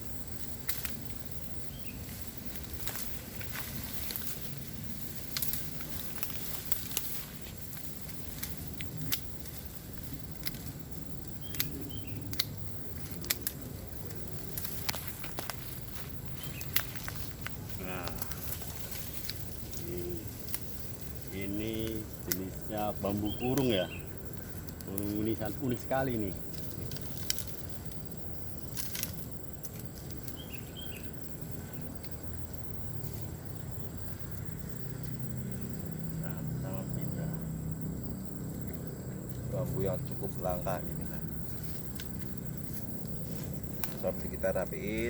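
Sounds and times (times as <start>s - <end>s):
high insect tone: 0.0s - 45.0s
sharp clicks and snaps: 0.5s - 1.3s, 2.5s - 21.0s, 23.5s - 30.5s, 40.9s - 44.2s
bird chirps: 1.2s - 2.2s, 11.0s - 12.4s, 16.1s - 17.1s, 21.1s - 26.4s, 30.2s - 31.9s
sharp clicks: 7.7s - 19.5s.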